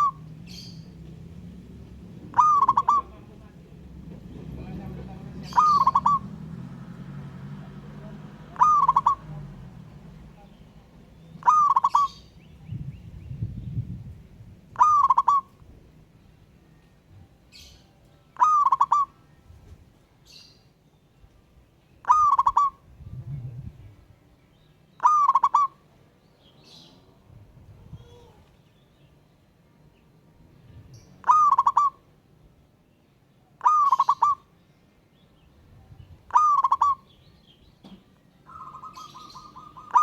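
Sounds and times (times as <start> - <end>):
dove cooing: 0.0 - 10.3, 11.4 - 12.3, 14.7 - 15.6, 18.4 - 19.2, 22.0 - 23.8, 25.0 - 25.8, 31.2 - 32.1, 33.6 - 34.5, 36.3 - 37.1, 38.5 - 40.0
low rumble: 12.2 - 14.8, 22.8 - 24.2.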